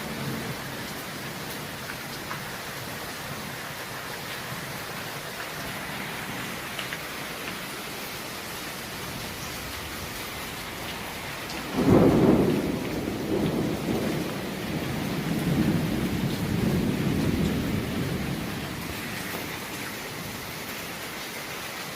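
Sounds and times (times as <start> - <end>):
steady rain: 0.0 - 21.9
thunderclap rolling rumble: 9.1 - 20.4.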